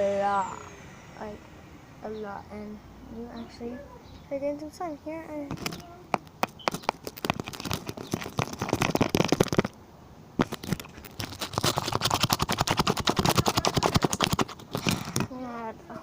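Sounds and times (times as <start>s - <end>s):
slime squelching: 5.5s - 9.7s, 10.4s - 15.4s.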